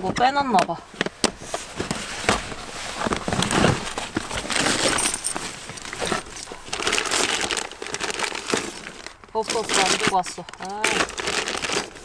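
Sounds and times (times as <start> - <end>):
rustling of gear: 0.0 - 12.0
metal items clinking: 3.0 - 12.0.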